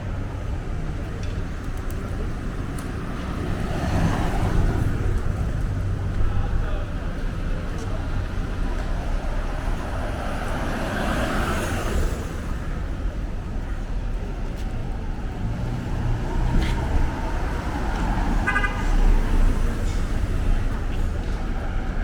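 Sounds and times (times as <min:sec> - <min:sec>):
cars passing: 0:00.0 - 0:22.0
car horn toot: 0:18.4 - 0:19.0.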